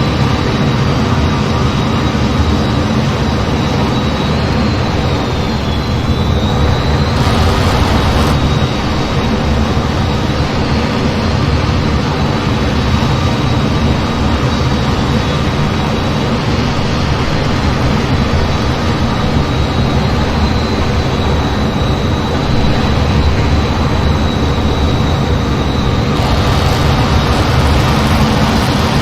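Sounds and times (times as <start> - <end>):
jet engine rumble: 2.7 - 11.0, 11.6 - 29.0
thin high whine: 4.9 - 8.7, 24.4 - 29.0.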